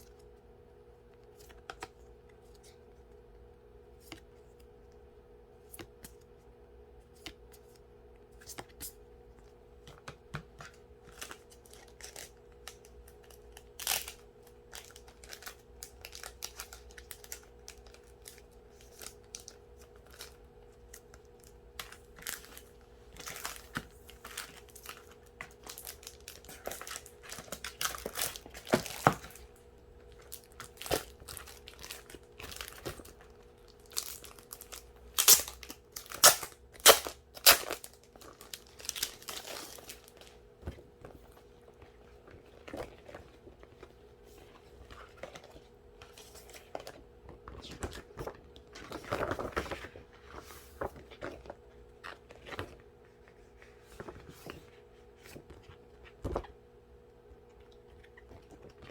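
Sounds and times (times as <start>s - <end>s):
wrapping crinkling and tearing: 11.0s - 40.4s.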